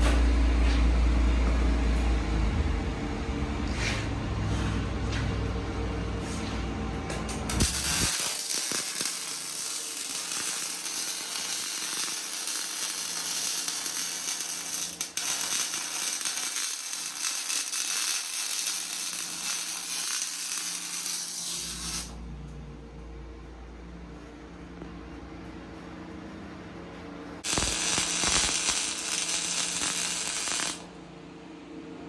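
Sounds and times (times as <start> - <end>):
welding arc crackling sizzle: 7.3 - 22.2, 27.4 - 30.9.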